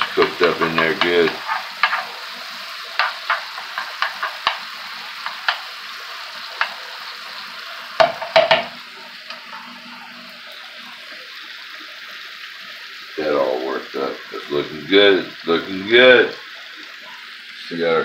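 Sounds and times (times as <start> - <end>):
spatula scraping and tapping pan: 0.0 - 5.8, 6.5 - 6.8, 8.0 - 9.7
food sizzling in butter: 0.0 - 18.0.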